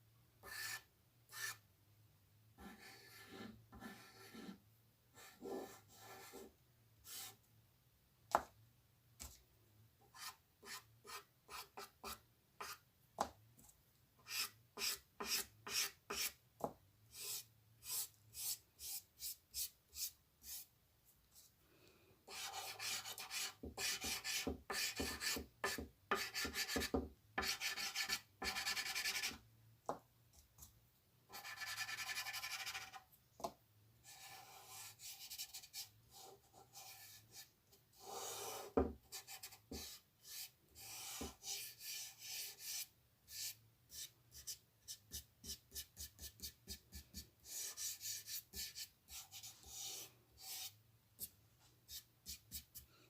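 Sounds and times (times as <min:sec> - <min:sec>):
drawing tool scratching paper: 0:00.4 - 0:01.6, 0:02.6 - 0:04.6, 0:22.3 - 0:29.4, 0:31.3 - 0:33.0, 0:34.1 - 0:50.7.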